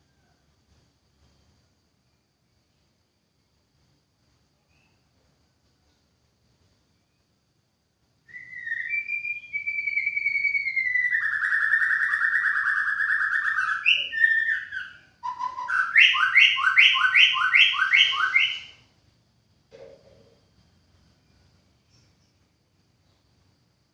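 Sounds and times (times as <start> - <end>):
bird whistled song and trill: 8.3 - 18.8.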